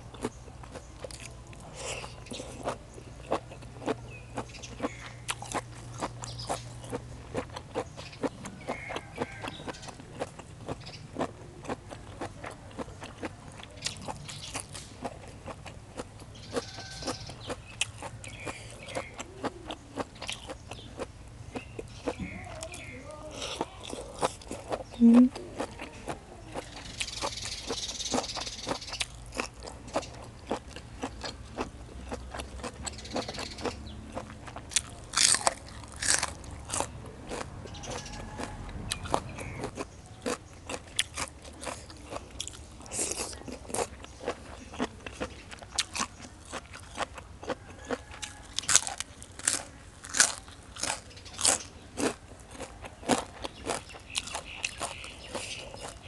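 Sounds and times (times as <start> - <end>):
wet mouth sounds: 23.5 - 25.8
crisp crunching bites: 28.1 - 56.0.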